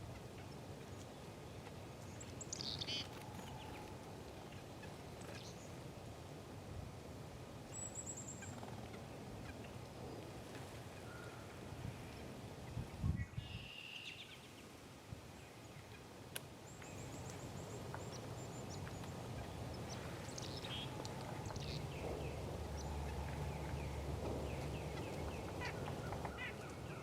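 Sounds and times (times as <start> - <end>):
low steady background rumble: 15.2 - 27.0
small birds chirping: 16.7 - 27.0.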